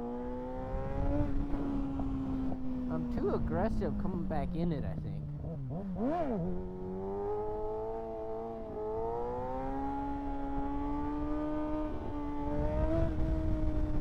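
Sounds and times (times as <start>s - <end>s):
wind rumble on microphone: 0.4s - 4.0s, 9.3s - 14.0s.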